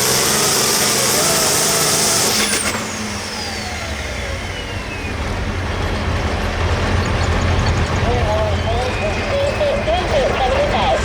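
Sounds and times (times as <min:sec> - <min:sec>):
engine whine winding down: 0:00.0 - 0:11.0
low engine rumble: 0:00.0 - 0:11.0.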